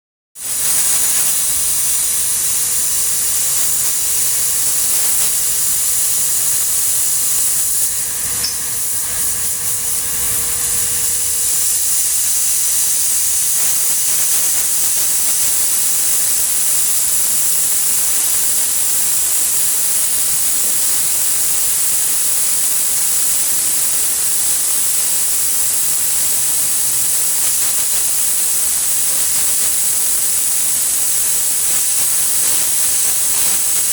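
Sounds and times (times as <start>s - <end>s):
paint spray gun hissing: 0.4s - 33.9s.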